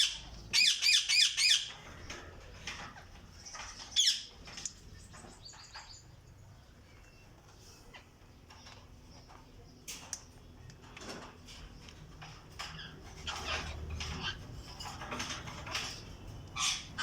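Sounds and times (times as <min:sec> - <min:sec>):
parakeets squawking: 0:00.0 - 0:01.8, 0:03.5 - 0:04.3, 0:16.5 - 0:17.0.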